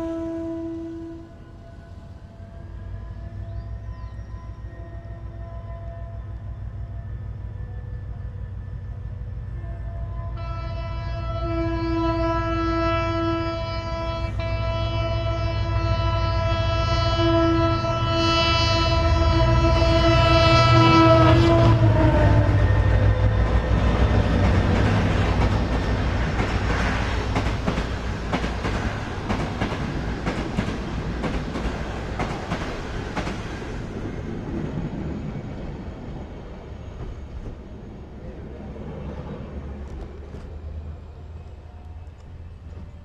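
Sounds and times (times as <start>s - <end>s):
train horn: 0.0s - 23.8s
locomotive engine rumbling: 0.0s - 43.0s.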